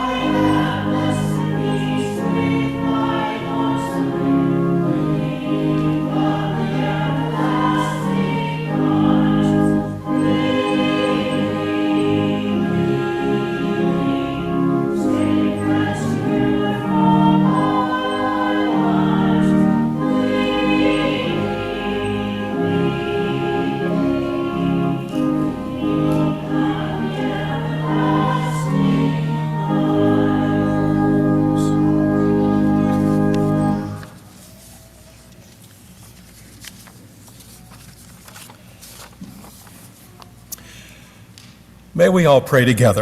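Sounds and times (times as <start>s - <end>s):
group singing a hymn: 0.0s - 34.2s
church organ: 0.0s - 40.4s.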